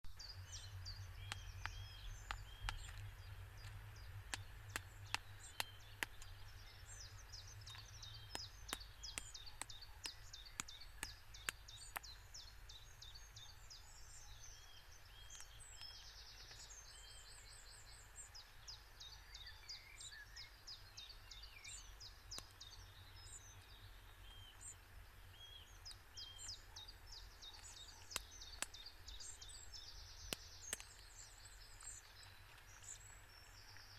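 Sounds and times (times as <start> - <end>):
birds singing and chirping: 0.0 - 33.9
snail shell knocking on stone: 1.2 - 6.4, 7.7 - 12.1.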